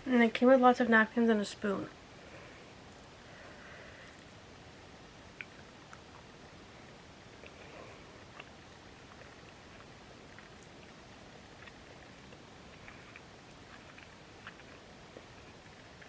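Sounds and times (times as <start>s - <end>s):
steady low hiss: 0.0s - 16.0s
faint chewing: 5.2s - 16.0s.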